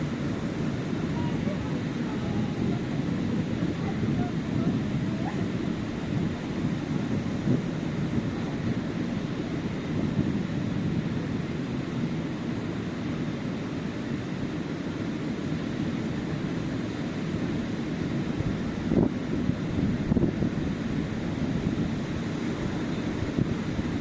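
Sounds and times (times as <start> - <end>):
surf washing onto beach: 0.0 - 24.0
wind rumble on microphone: 0.0 - 24.0.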